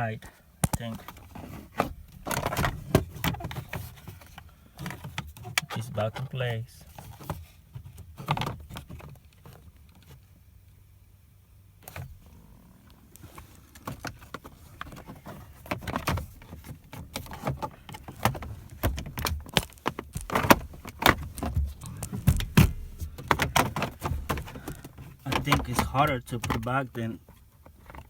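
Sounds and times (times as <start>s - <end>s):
plastic trim clicking and rattling: 15.7s - 26.7s.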